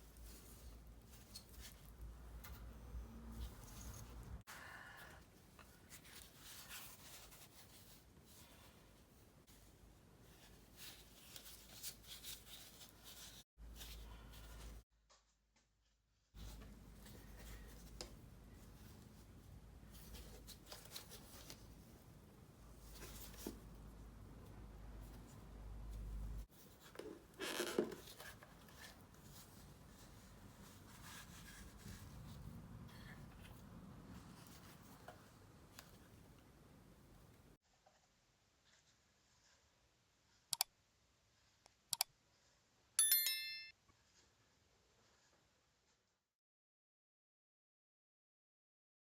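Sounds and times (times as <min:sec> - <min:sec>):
short metallic ring: 0:43.0 - 0:43.7.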